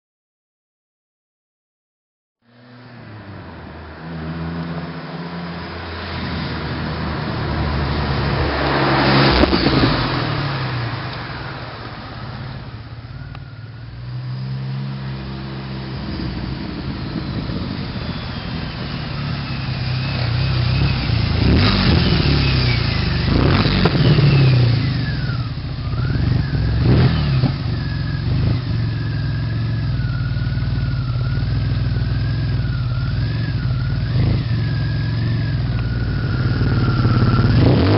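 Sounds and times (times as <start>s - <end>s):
engine throttle blips: 2.4s - 37.9s
car engine idling: 2.6s - 37.9s
high whistle wavering: 8.2s - 37.9s.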